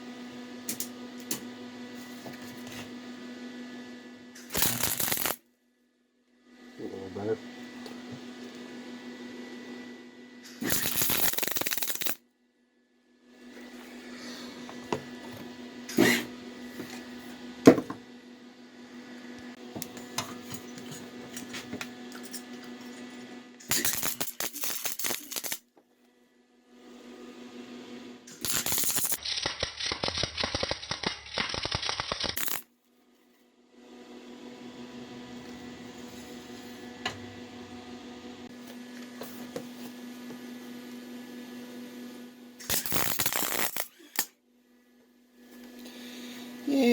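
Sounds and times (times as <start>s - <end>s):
steady hum: 4.0s - 5.4s
arc welding crackle: 4.4s - 5.4s, 10.5s - 12.2s, 23.6s - 25.6s, 28.3s - 32.7s, 42.6s - 44.2s.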